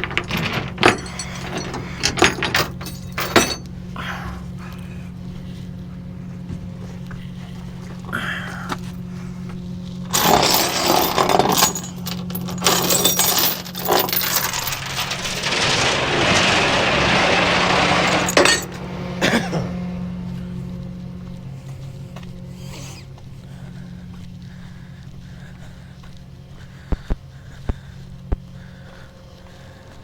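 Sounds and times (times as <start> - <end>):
metallic clanking and rattling: 0.0 - 3.8, 10.1 - 19.5.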